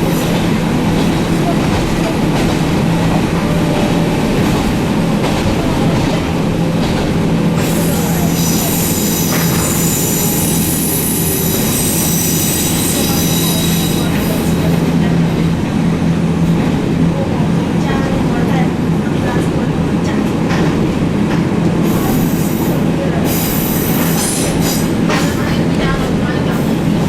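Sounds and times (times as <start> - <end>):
train rumbling on rails: 0.0 - 27.0
high-pitched wheel squeal: 8.5 - 14.2.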